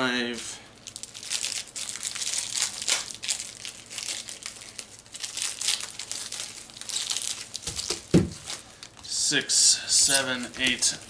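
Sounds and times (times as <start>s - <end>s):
foil packs crinkling: 0.3s - 11.0s.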